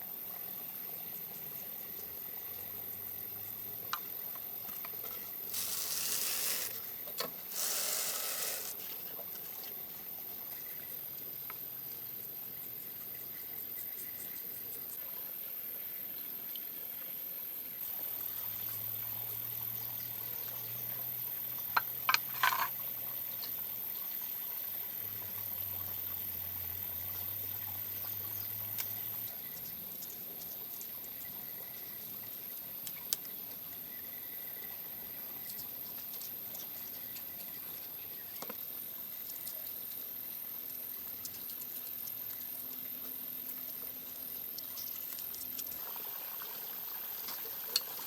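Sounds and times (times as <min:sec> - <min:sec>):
water trickling: 0:43.6 - 0:48.0.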